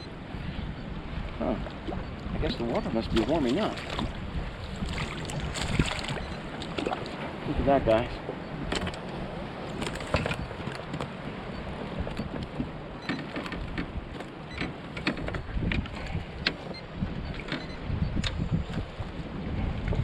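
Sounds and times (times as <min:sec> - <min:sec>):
wind buffeting microphone: 0:00.0 - 0:20.0
handling clicks and knocks: 0:08.7 - 0:11.1, 0:12.1 - 0:16.7.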